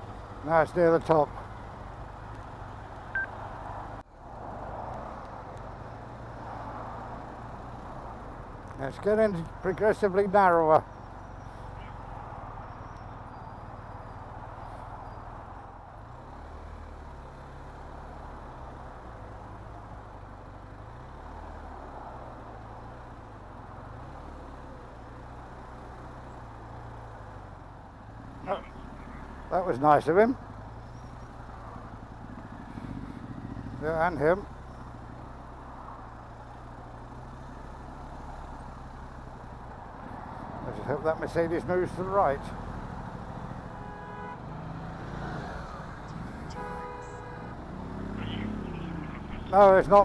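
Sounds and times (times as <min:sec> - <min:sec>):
motorcycle engine hum: 0:00.0 - 0:50.0
wind and road noise: 0:00.0 - 0:50.0.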